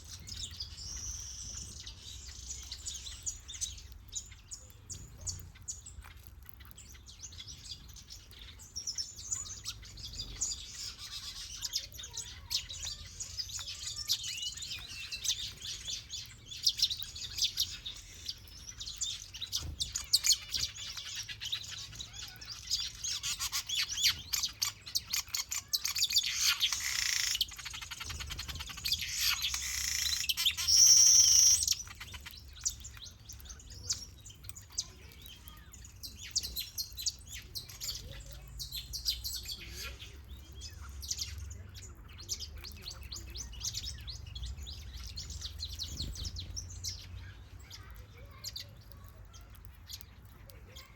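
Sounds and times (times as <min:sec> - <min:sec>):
small birds chirping and twittering: 0:00.0 - 0:50.9
loud high bird trill: 0:09.0 - 0:32.3.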